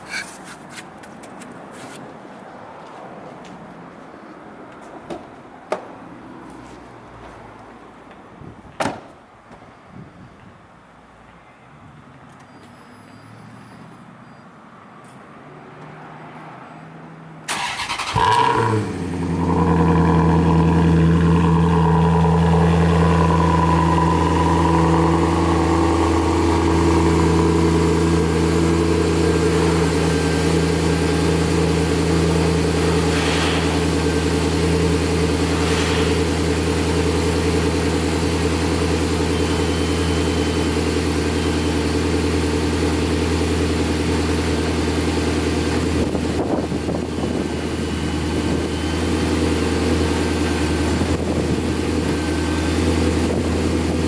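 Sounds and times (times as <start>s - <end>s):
starter motor cranking: 17.5s - 19.1s
car engine idling: 17.5s - 54.0s.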